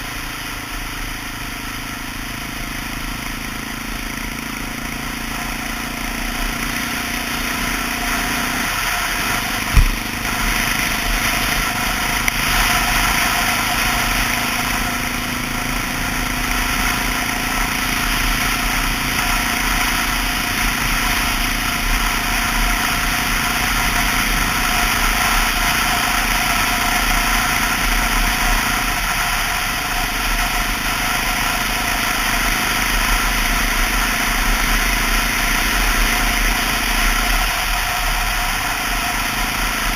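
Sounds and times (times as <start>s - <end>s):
motorcycle engine running: 0.0s - 39.9s
sharp knock: 9.7s - 10.2s.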